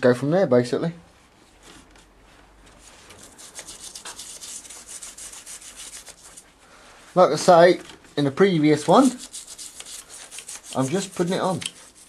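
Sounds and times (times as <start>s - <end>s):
brush scrubbing metal: 2.8s - 6.5s, 8.8s - 12.0s.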